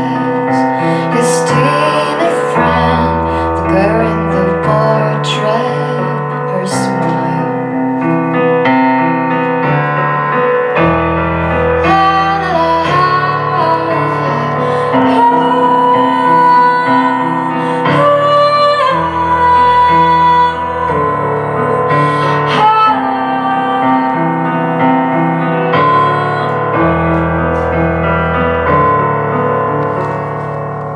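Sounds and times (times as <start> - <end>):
woman singing long notes: 11.8 - 27.2.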